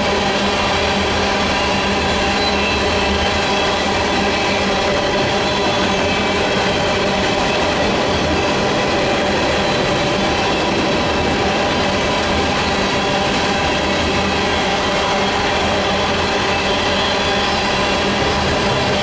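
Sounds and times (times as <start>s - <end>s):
train wheels on rail: 0.0s - 19.0s.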